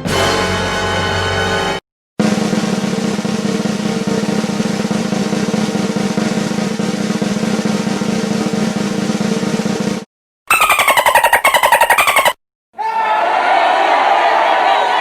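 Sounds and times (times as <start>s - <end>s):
snare drum roll: 2.2s - 10.1s.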